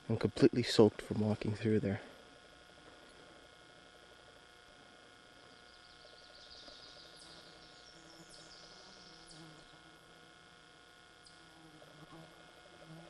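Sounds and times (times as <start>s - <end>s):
soft high chirring: 5.3s - 10.1s.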